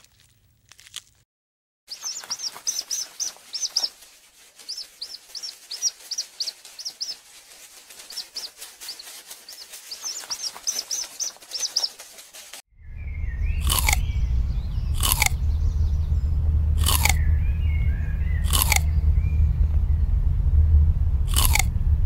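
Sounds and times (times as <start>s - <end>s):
birds chirping: 1.9s - 21.7s
faint clicks and scratches: 2.0s - 12.6s.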